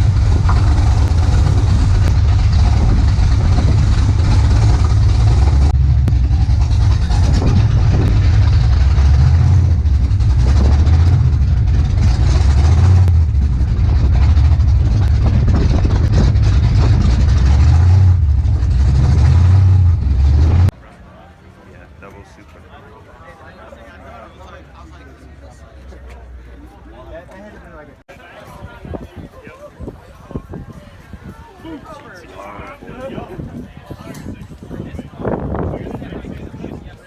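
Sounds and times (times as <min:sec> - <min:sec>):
car engine rumbling: 0:00.0 - 0:20.8.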